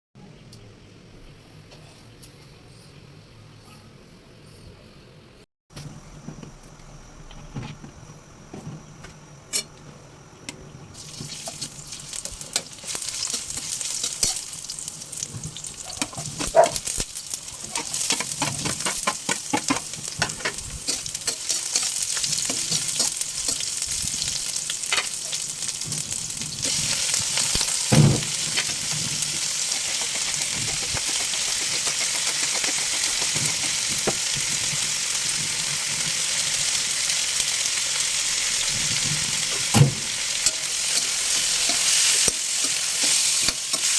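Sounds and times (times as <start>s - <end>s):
food sizzling in hot oil: 10.9s - 43.9s
utensil clicking against pan: 29.7s - 33.8s.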